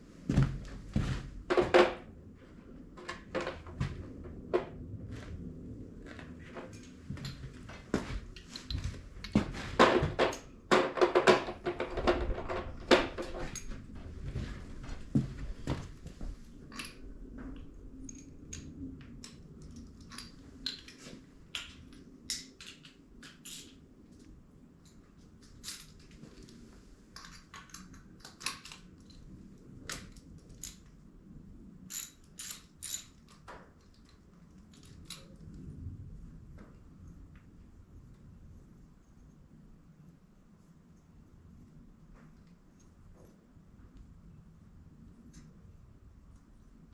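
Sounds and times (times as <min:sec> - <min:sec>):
tools knocking and clattering: 0:01.5 - 0:02.1, 0:08.4 - 0:13.8
socket ratchet and tools clinking: 0:31.9 - 0:33.4.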